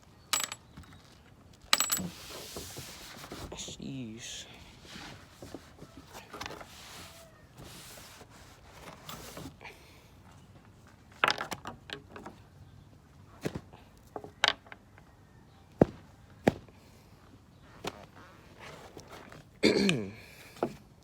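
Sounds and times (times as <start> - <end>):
clicks and knocks of tools set down: 0.3 - 1.0, 1.7 - 2.2.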